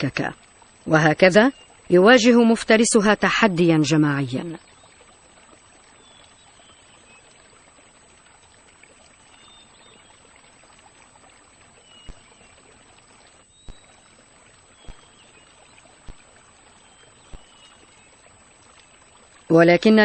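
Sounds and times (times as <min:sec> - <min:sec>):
steady hiss: 0:08.9 - 0:20.0
faint high bird calls: 0:11.7 - 0:12.8, 0:13.4 - 0:16.0, 0:16.6 - 0:18.4.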